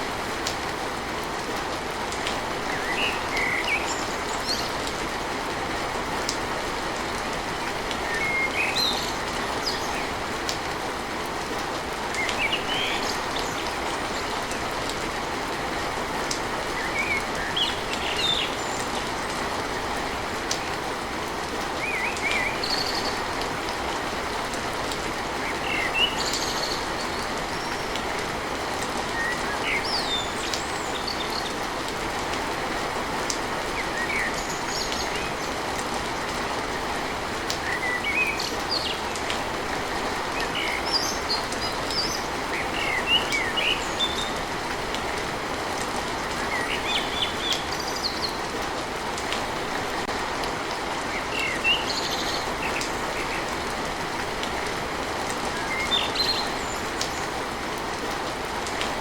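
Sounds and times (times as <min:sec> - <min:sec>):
rain on a tin roof: 0:00.0 - 0:59.0
small birds chirping: 0:02.3 - 0:05.2, 0:07.4 - 0:10.3, 0:16.6 - 0:19.7, 0:21.7 - 0:24.1, 0:25.2 - 0:32.4, 0:33.5 - 0:35.9, 0:36.6 - 0:39.4, 0:40.2 - 0:44.6, 0:45.2 - 0:49.9, 0:50.6 - 0:53.7, 0:55.4 - 0:57.6.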